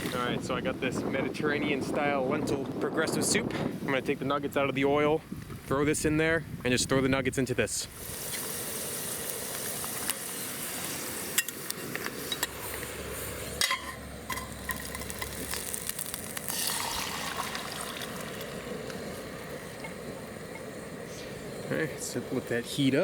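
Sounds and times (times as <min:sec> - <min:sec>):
meat sizzling in hot oil: 0:08.0 - 0:21.8.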